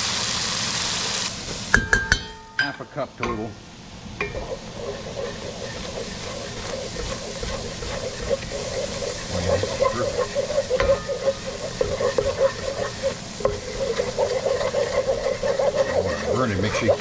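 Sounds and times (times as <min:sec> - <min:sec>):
roux sizzling in a pan: 0:00.0 - 0:17.0
utensil clicking against pan: 0:04.2 - 0:17.0.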